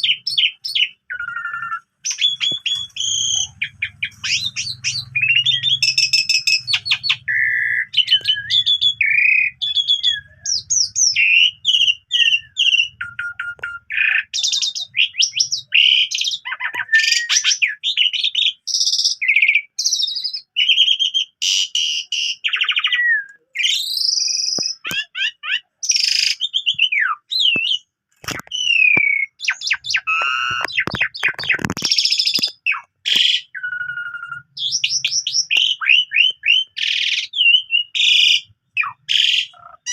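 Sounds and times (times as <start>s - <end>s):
starling singing varied song: 0.0s - 20.0s.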